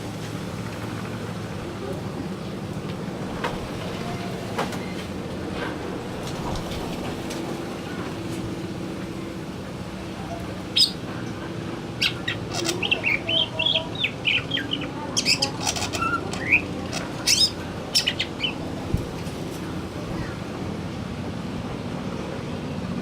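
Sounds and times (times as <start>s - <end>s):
bird singing chirps and warbles: 10.1s - 19.0s.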